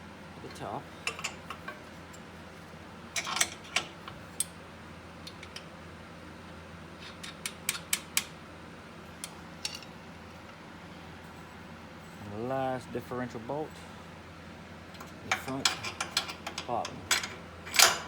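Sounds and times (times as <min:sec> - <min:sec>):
steady low hum: 0:00.0 - 0:18.0
metal bolts and tools clicking: 0:01.0 - 0:01.8, 0:03.2 - 0:04.5, 0:09.2 - 0:09.9, 0:15.0 - 0:18.0.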